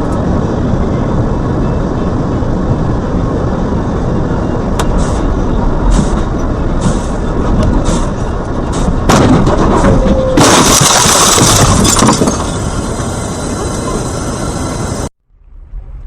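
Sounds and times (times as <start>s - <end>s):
road noise: 0.0s - 16.0s
car crash: 5.9s - 16.0s
crunch with breaking glass: 10.4s - 12.5s.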